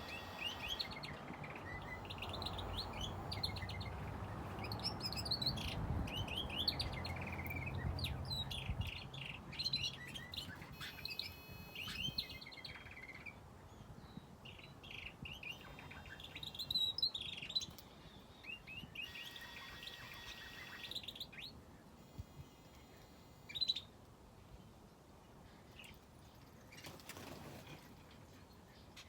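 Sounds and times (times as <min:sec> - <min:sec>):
thin whistled bird notes: 0:00.0 - 0:03.9
small birds chirping: 0:00.0 - 0:24.0.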